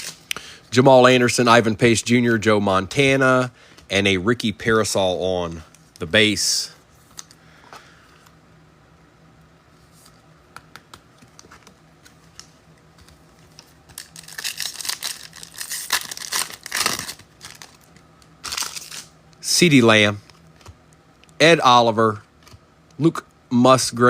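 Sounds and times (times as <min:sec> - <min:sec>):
wrapper tearing and crinkling: 0:00.0 - 0:00.3, 0:13.6 - 0:19.2.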